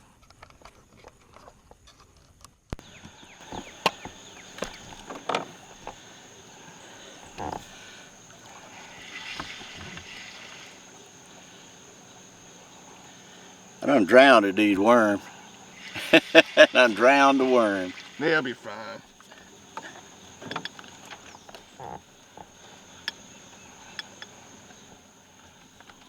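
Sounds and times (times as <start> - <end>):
high insect buzz: 2.8 - 26.0
fishing gear knocks and clicks: 3.4 - 8.0, 19.2 - 24.9.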